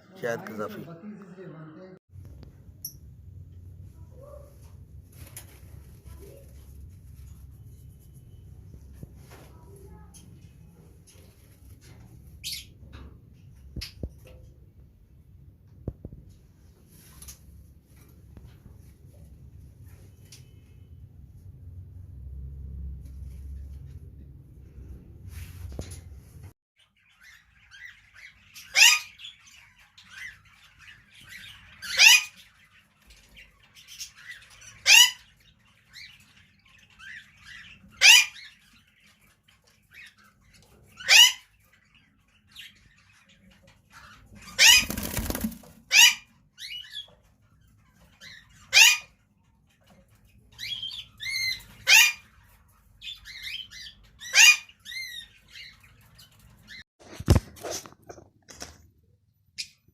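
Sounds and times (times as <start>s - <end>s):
birds chirping softly: 2.2s - 57.3s, 57.9s - 59.9s
lovebirds screeching: 26.8s - 49.3s, 50.4s - 56.8s
wings flapping: 44.6s - 45.9s.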